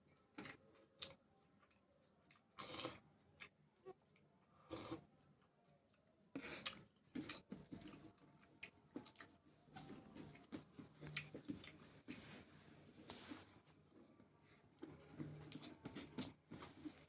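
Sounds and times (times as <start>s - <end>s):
person chewing raw vegetables: 6.4s - 12.2s.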